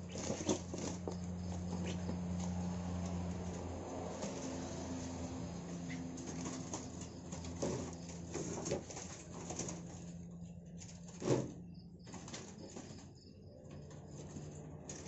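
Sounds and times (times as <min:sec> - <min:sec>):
bird calls: 0:00.0 - 0:02.2, 0:05.7 - 0:07.4
birds scuffling: 0:00.0 - 0:15.0
steady low hum: 0:00.0 - 0:15.0.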